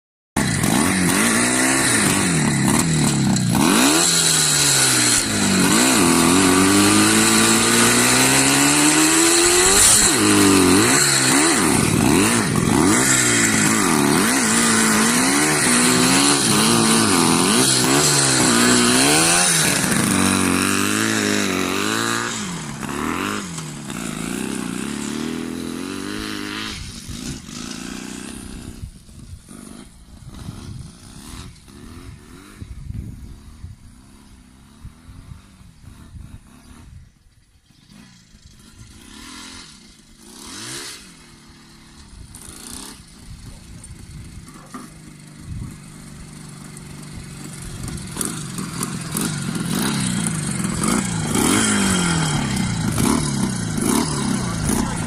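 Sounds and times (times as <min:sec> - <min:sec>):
motorcycle engine revving: 0:00.4 - 0:55.0.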